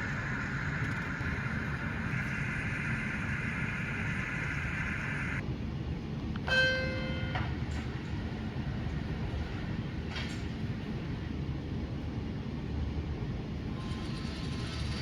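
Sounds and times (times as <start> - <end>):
steady whine: 0.0 - 5.5
model train low rumble: 0.0 - 15.0.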